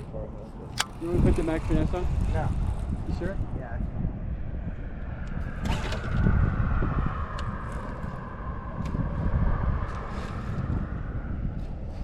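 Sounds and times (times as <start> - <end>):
wind rumble on microphone: 0.0 - 12.0
sharp clicks: 0.7 - 1.1.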